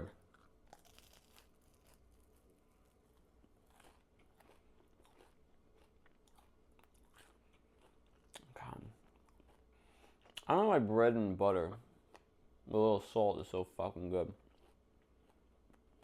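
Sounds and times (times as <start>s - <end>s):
person chewing toast crunching: 0.0s - 10.5s, 14.3s - 16.0s.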